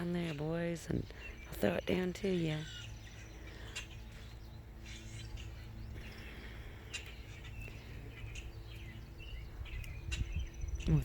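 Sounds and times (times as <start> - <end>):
low background hum: 0.0 - 11.0
songbirds chirping: 0.0 - 11.0.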